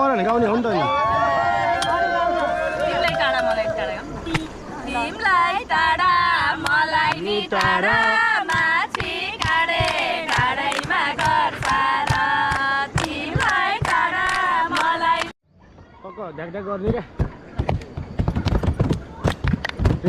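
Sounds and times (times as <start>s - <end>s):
group singing unaccompanied: 4.9s - 15.4s.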